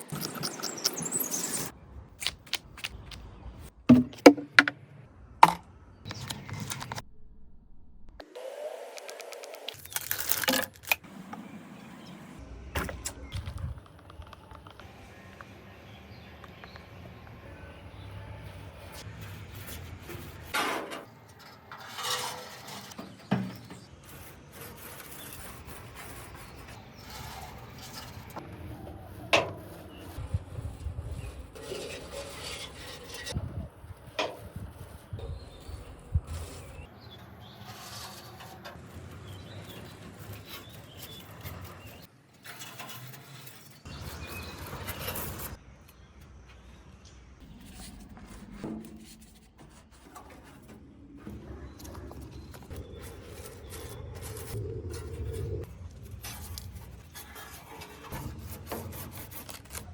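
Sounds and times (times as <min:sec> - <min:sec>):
rough scrape on metal: 0:19.0 - 0:33.4, 0:36.3 - 0:45.6, 0:52.4 - 0:59.9.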